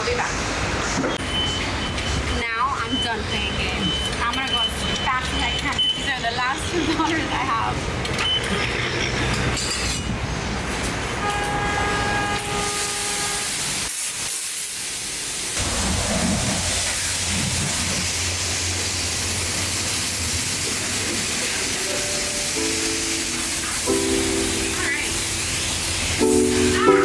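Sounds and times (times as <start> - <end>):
pressure washer spraying water: 11.4 - 27.0
steady tones: 21.6 - 27.0.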